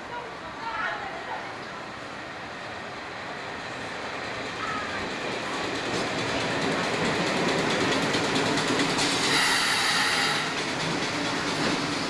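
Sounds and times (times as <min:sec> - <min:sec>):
wheels clicking over rail joints: 0:04.6 - 0:12.0
high wheel squeal: 0:09.2 - 0:10.6.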